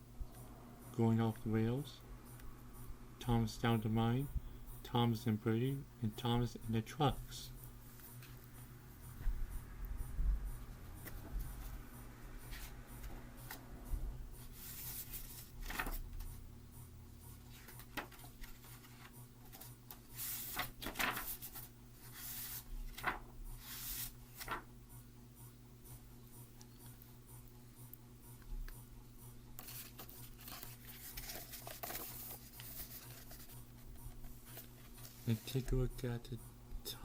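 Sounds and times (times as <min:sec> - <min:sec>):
low room hum: 0:00.0 - 0:37.0
book pages rustling: 0:14.5 - 0:16.0, 0:17.4 - 0:24.7, 0:29.6 - 0:35.8.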